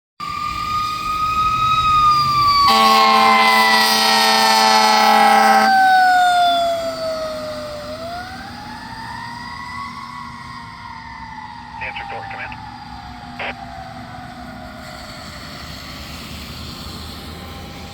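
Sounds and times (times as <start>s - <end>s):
fire engine siren wailing: 0.2s - 17.9s
air horn blast: 2.7s - 5.7s.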